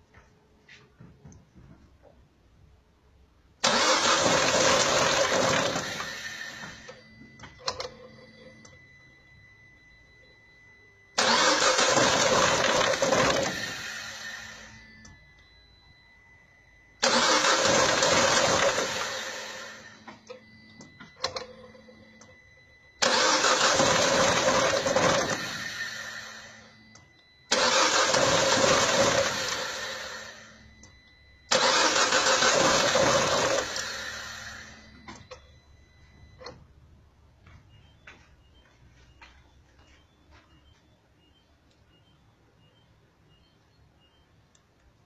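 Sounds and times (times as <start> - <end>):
petrol engine cranking: 3.6 - 6.8, 11.2 - 14.2, 17.0 - 19.6, 23.0 - 26.4, 27.5 - 30.2, 31.5 - 34.7.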